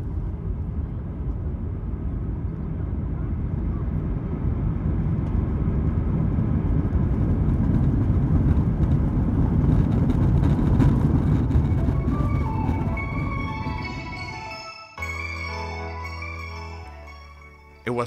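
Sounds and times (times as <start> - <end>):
airliner cabin engine rumble: 0.0 - 14.6
music: 11.6 - 18.0.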